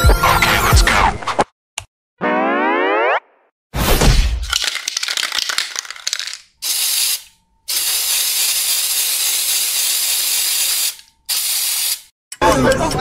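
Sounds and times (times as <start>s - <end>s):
spray can rattling: 4.5s - 12.1s
spray paint hissing: 4.7s - 12.1s.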